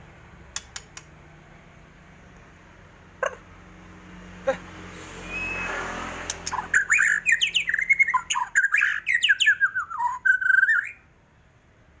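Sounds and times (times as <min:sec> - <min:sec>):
bird singing whistled notes: 0:05.2 - 0:05.8, 0:06.4 - 0:11.1.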